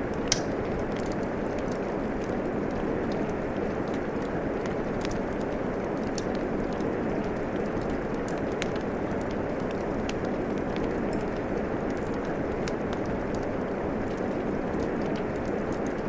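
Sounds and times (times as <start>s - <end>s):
steady rain falling: 0.0s - 16.0s
wood fire crackling: 0.0s - 16.0s.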